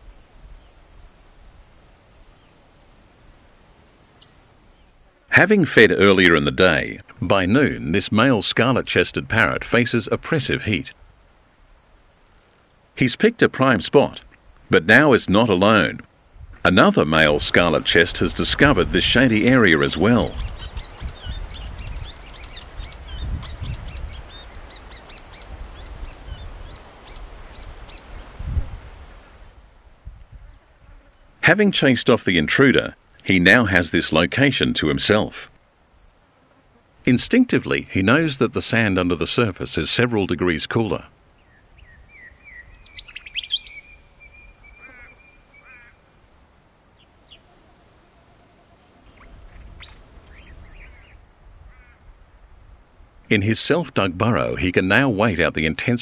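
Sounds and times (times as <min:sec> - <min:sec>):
birds chirping: 0:04.1 - 0:10.9, 0:12.3 - 0:28.4, 0:37.3 - 0:46.1, 0:46.9 - 0:52.1
bird warbling trill: 0:19.4 - 0:28.3, 0:41.4 - 0:46.0
parrots twittering chirps: 0:20.3 - 0:28.3, 0:41.5 - 0:45.9.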